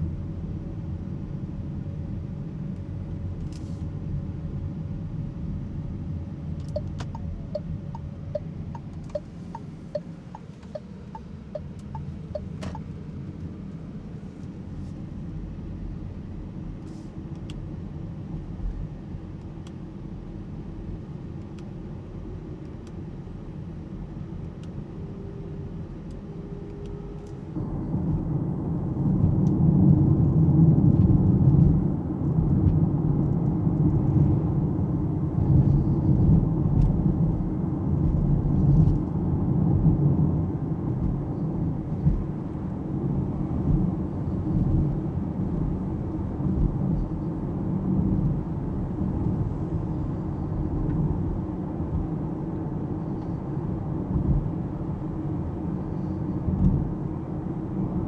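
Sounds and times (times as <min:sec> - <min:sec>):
road and tyre rumble: 0:00.0 - 0:58.0
turn signal ticking: 0:06.6 - 0:13.0, 0:41.9 - 0:42.8.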